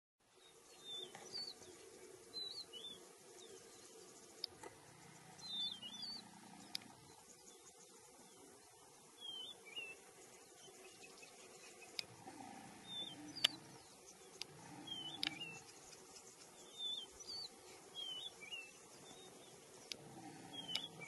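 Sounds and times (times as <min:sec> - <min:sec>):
faint outdoor background: 0:00.2 - 0:21.0
sharp clicks: 0:13.3 - 0:13.6, 0:14.4 - 0:15.5, 0:20.7 - 0:20.9.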